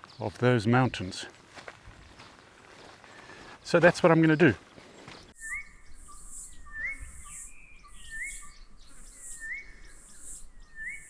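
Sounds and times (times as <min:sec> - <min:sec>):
bird rising whistle: 0:10.7 - 0:11.0.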